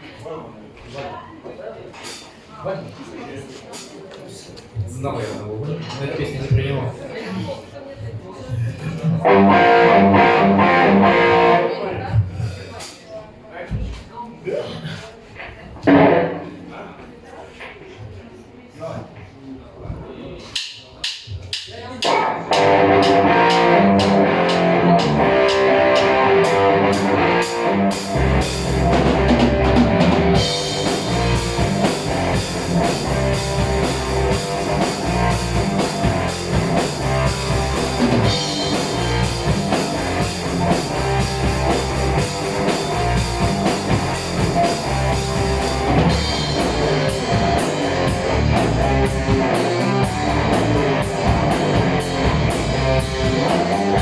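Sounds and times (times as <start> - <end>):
bass guitar: 9.1 - 11.8, 22.0 - 54.0
heavy metal band playing: 9.2 - 11.8, 22.0 - 54.0
electric guitar: 9.2 - 11.9, 22.0 - 54.0.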